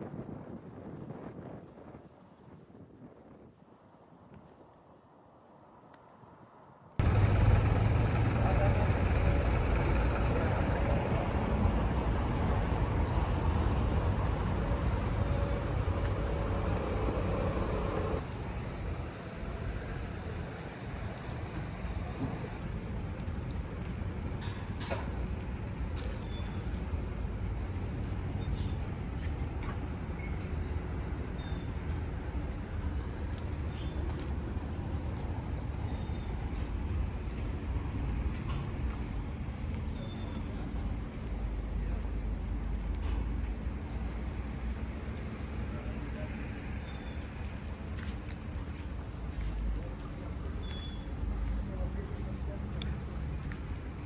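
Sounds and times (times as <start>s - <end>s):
low rumble of street traffic: 0.0s - 54.0s
vehicle engine running: 7.0s - 18.3s.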